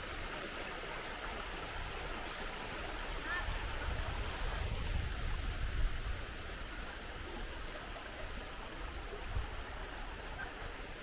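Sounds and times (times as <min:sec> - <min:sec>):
stream rushing over waterfall: 0:00.0 - 0:11.0.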